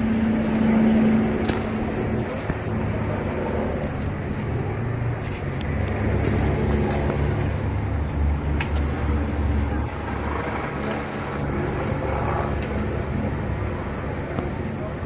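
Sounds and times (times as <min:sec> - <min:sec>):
street traffic: 0:00.0 - 0:15.0.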